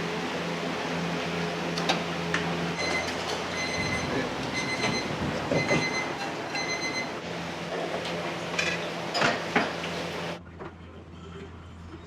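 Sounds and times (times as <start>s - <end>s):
cookware and utensils clattering: 8.4s - 9.9s.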